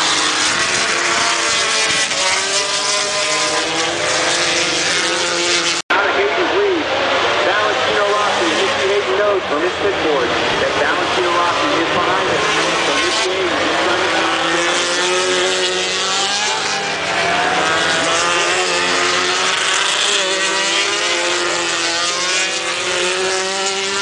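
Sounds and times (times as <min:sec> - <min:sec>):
racing motorcycle engines: 0:00.0 - 0:24.0.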